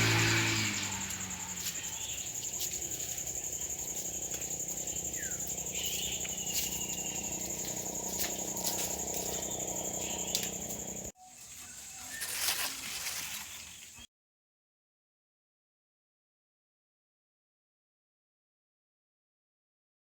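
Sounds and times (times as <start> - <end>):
crickets trilling: 0.0 - 14.0
bird chirp: 0.7 - 14.1.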